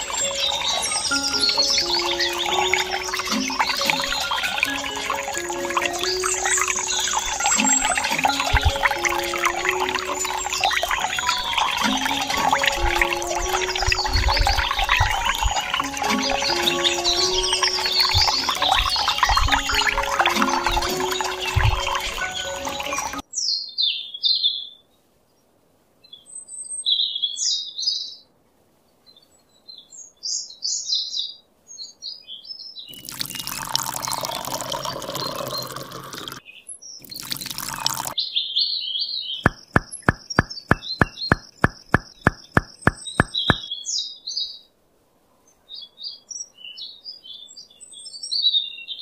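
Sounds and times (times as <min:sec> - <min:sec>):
water poured onto sand: 0:00.0 - 0:23.2, 0:33.0 - 0:36.4, 0:37.0 - 0:38.2
birds chirping: 0:00.0 - 0:24.1, 0:32.8 - 0:44.5
sharp clicks: 0:39.5 - 0:43.6.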